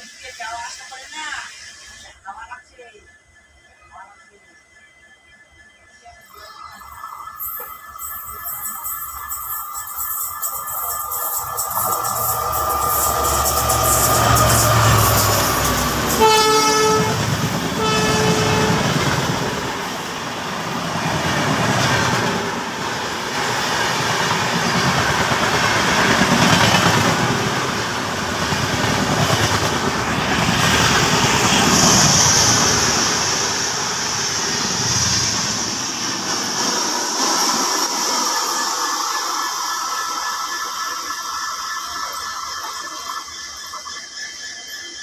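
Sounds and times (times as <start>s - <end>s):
passing train rush and rumble: 6.0s - 45.0s
train horn blasts: 14.8s - 19.3s.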